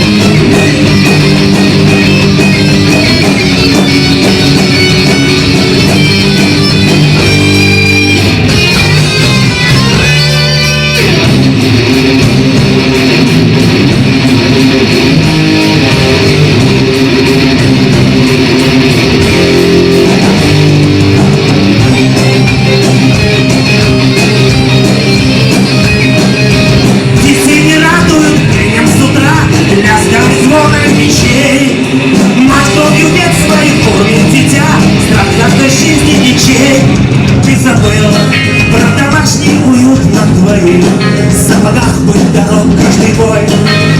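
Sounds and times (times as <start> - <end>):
instrumental rock music: 0.0 - 43.9.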